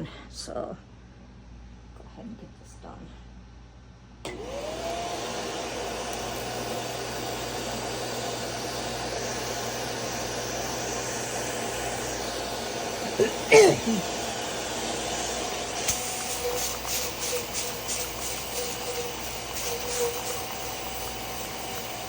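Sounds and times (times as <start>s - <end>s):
carpet cleaner motor whine: 4.2s - 22.0s
loud suction rush: 4.3s - 22.0s.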